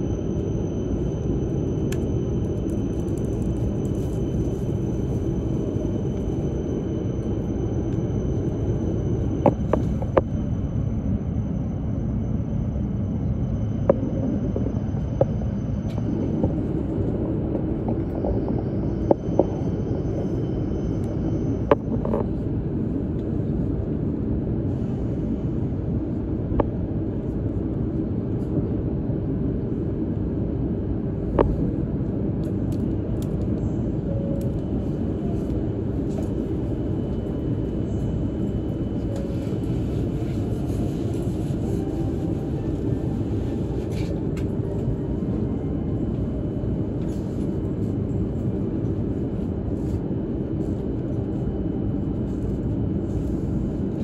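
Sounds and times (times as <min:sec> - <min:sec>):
train rumbling at speed: 0:00.0 - 0:54.0.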